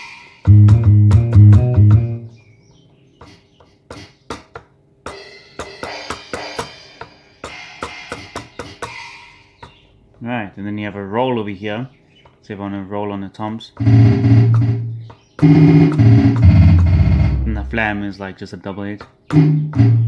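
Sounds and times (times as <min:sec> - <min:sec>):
drum machine beat: 0:00.0 - 0:02.3, 0:03.2 - 0:09.8, 0:13.7 - 0:18.1, 0:19.1 - 0:20.0
loud low bass tone: 0:13.8 - 0:18.0, 0:19.4 - 0:20.0.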